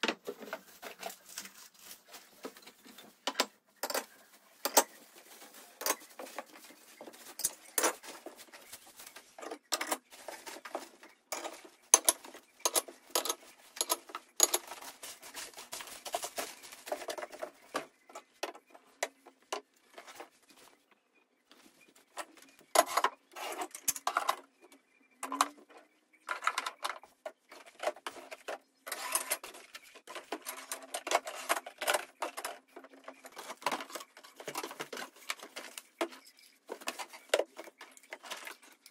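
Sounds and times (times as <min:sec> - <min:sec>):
rustling: 0:00.1 - 0:03.2, 0:04.0 - 0:17.9
household objects clicking and tapping: 0:02.4 - 0:05.1, 0:09.2 - 0:20.3, 0:22.2 - 0:38.9.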